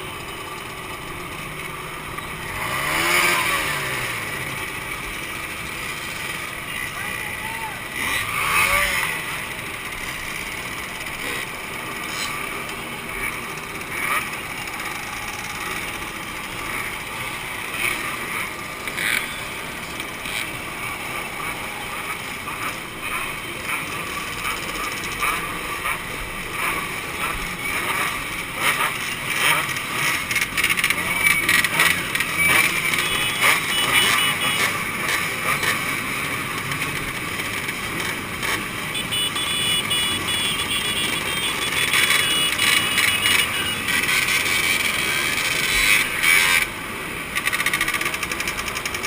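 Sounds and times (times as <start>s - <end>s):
two-stroke motorcycle engines: 0.0s - 49.0s
crowd chatter: 4.5s - 28.0s.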